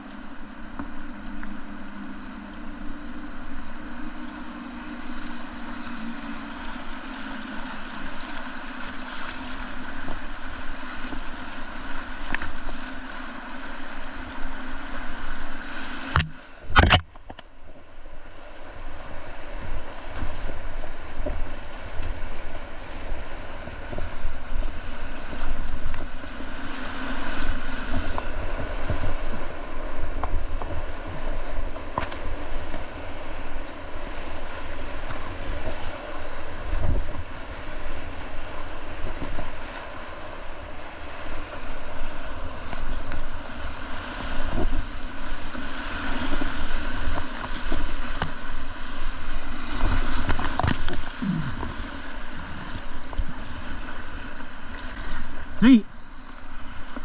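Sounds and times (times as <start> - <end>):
whitewater rushing and splashing: 0.0 - 17.0, 18.7 - 57.0
wind buffeting microphone: 34.8 - 39.6.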